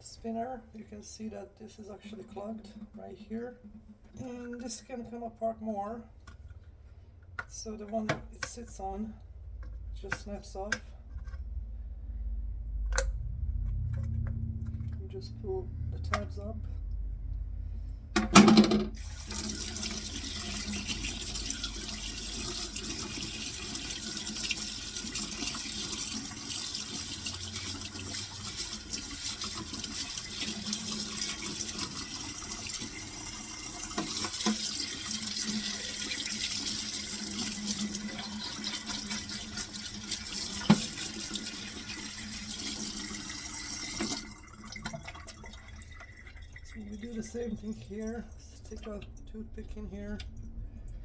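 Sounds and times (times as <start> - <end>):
kitchen tap running: 18.2 - 50.4.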